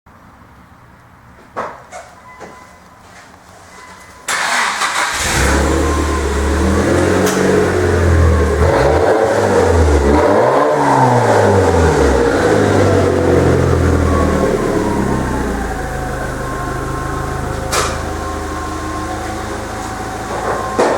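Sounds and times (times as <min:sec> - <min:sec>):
car engine cranking: 0:04.3 - 0:20.9
car engine revving: 0:04.3 - 0:20.9.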